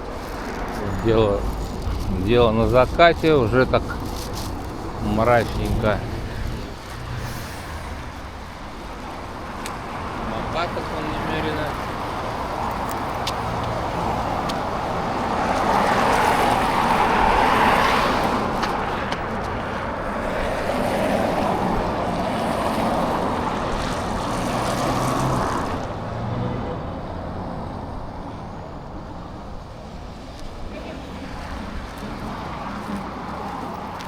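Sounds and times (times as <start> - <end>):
vehicles passing on road: 0.0 - 34.0.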